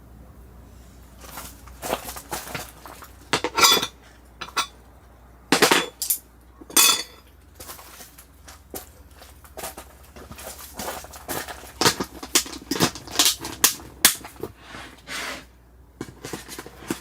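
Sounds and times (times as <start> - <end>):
metal cookware clattering: 3.3 - 4.8, 5.5 - 7.3.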